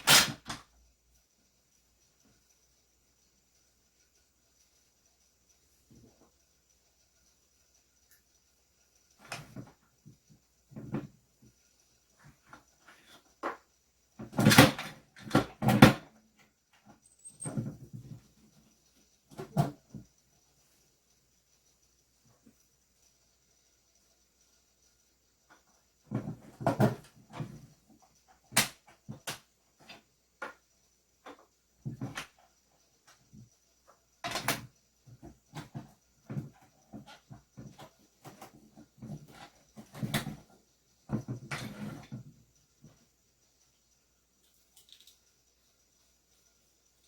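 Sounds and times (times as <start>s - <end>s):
pen parts clicking: 44.4s - 45.2s.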